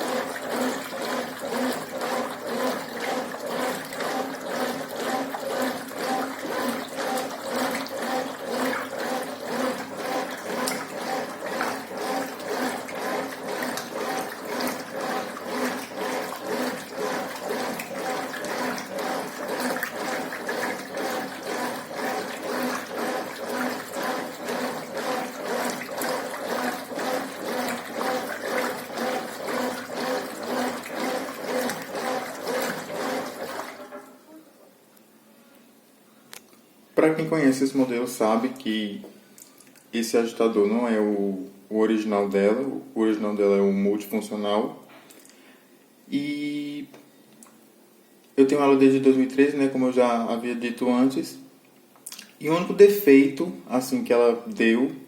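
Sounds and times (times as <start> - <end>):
water swishing in washing machine: 0.0 - 34.3, 37.2 - 38.9, 52.1 - 54.0
motor hum: 0.0 - 34.4.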